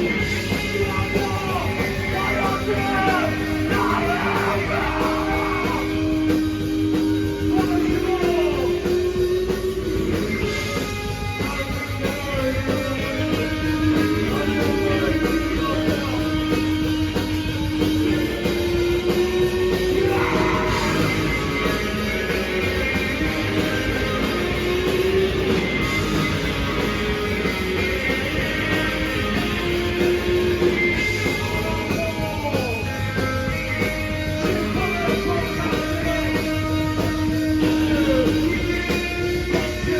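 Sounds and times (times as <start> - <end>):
electric guitars: 0.0 - 39.9
live rock band playing: 0.0 - 39.9
person singing: 0.7 - 6.1, 20.0 - 21.4.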